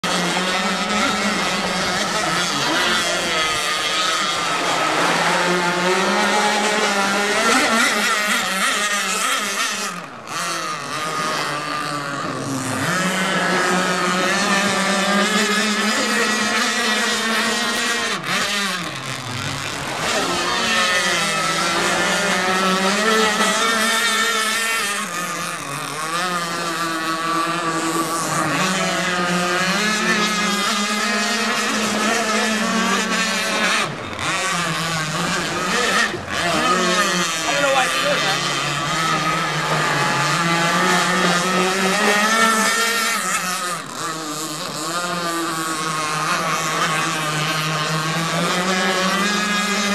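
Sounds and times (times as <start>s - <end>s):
two-stroke boat engines revving: 0.0s - 49.9s.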